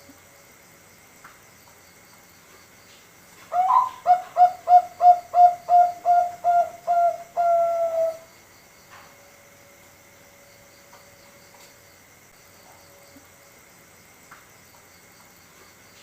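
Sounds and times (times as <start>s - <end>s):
dove cooing: 3.5s - 8.3s.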